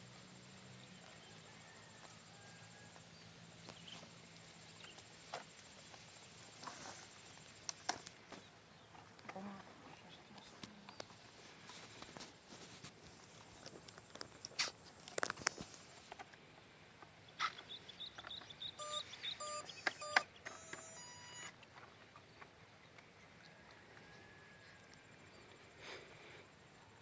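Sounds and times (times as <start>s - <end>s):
sharp clicks: 18.2s - 21.6s
short beeps or chirps: 18.8s - 21.5s.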